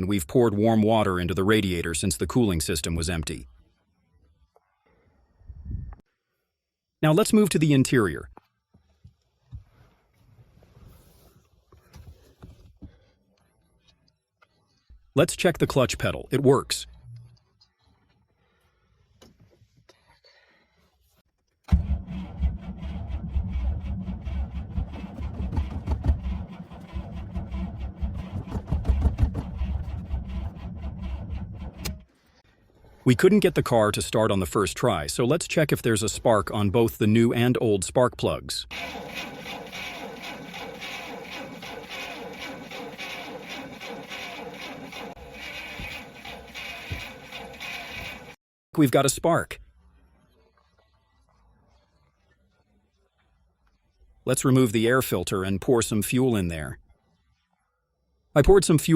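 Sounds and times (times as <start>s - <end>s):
starter motor cranking engine: 21.7s - 32.0s, 38.7s - 48.4s.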